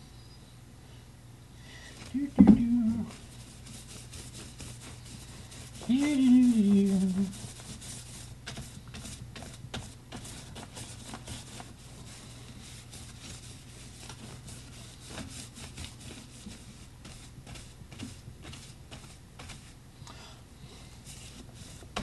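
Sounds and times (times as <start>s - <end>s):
steady low hum: 0.0s - 22.0s
art tool scratching on paper: 3.1s - 19.6s.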